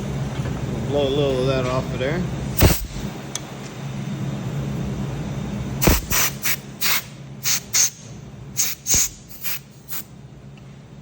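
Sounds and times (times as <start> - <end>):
air blow gun hissing blasts: 2.6 - 3.1, 5.8 - 8.0, 8.6 - 10.0.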